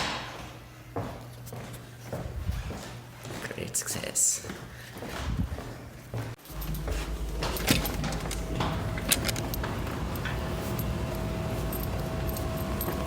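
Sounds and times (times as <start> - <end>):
steady low rumble: 6.4 - 13.0
handling clicks and knocks: 6.5 - 13.0.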